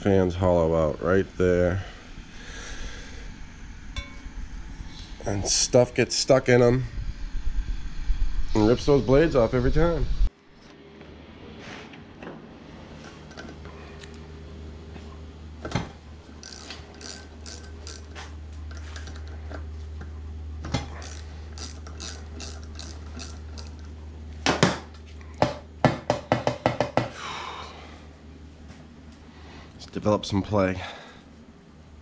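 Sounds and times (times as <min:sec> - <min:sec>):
steady low hum: 0:00.0 - 0:26.1, 0:26.9 - 0:32.0
hand tools clicking on metal: 0:16.4 - 0:19.3, 0:21.0 - 0:23.9.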